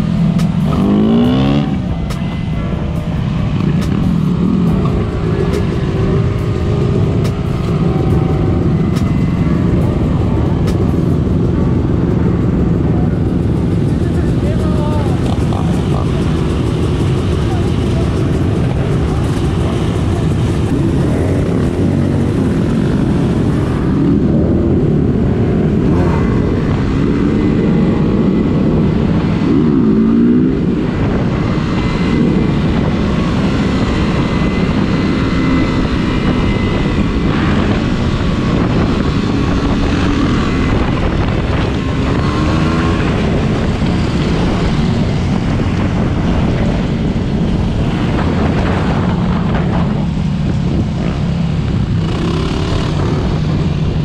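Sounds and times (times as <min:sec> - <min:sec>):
motorcycle engine revving: 0:00.0 - 0:54.0
wind rush on microphone: 0:00.0 - 0:54.0.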